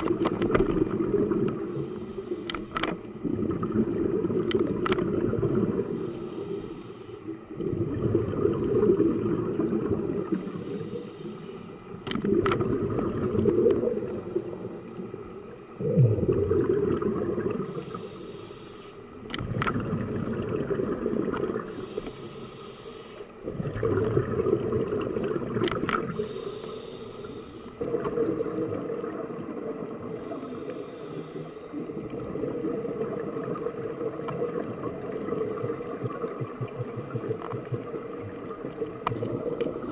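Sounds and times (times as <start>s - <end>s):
exhaled bubbles rumbling: 0.0s - 1.9s, 3.1s - 6.0s, 7.3s - 10.6s, 11.9s - 17.8s, 19.2s - 22.0s, 23.4s - 26.3s, 27.8s - 30.6s, 31.7s - 39.9s
scuba regulator inhale hiss: 1.6s - 2.9s, 5.9s - 7.4s, 10.2s - 11.9s, 13.9s - 15.0s, 17.6s - 19.1s, 21.6s - 23.4s, 26.1s - 27.8s, 30.1s - 31.8s.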